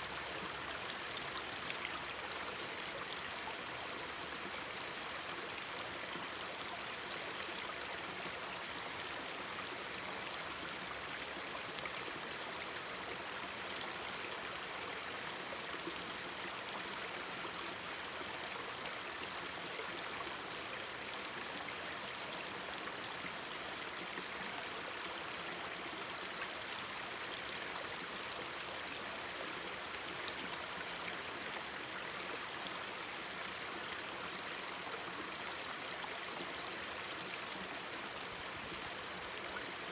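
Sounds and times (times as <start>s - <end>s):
stream babbling: 0.0s - 24.3s.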